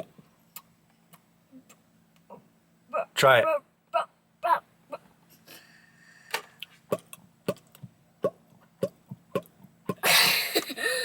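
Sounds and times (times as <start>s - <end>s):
hollow mouth pops: 6.9s - 10.0s.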